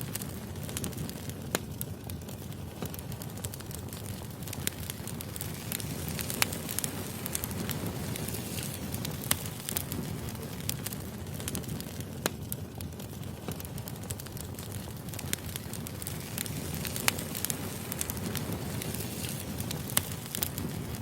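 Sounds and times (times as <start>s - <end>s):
firewood crackling: 0.0s - 21.0s.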